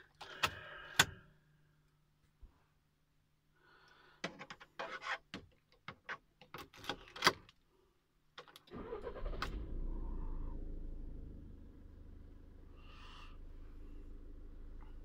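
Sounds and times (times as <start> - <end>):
car engine starting and idling: 8.7 - 15.0.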